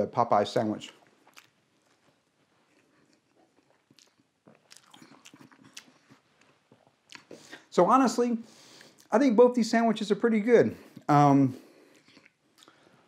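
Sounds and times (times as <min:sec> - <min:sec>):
faint chewing with crunchy clicks: 0:00.9 - 0:07.5, 0:11.7 - 0:13.0.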